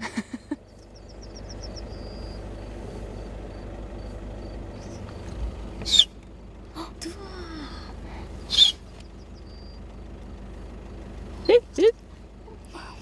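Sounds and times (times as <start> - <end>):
steady low rumble: 0.0 - 13.0
faint bird calling: 0.7 - 3.3, 4.7 - 6.2, 7.8 - 9.9.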